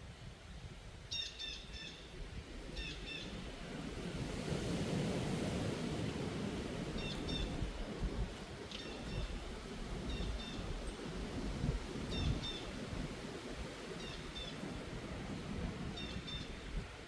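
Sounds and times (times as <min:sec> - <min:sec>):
wind blowing: 0:02.0 - 0:17.0.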